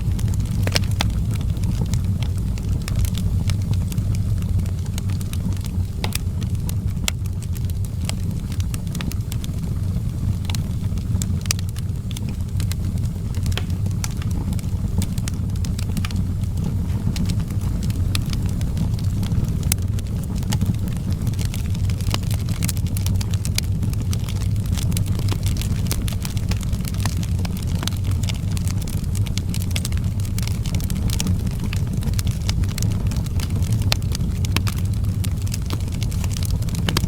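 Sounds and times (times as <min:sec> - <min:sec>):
low fire rumble: 0:00.0 - 0:37.0
wood fire crackling and popping: 0:00.0 - 0:37.0.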